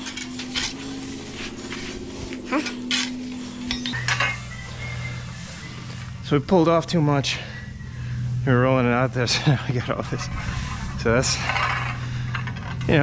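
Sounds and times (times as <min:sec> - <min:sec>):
metallic clinks and scrapes: 0:00.0 - 0:04.4
machine hum: 0:00.0 - 0:13.0.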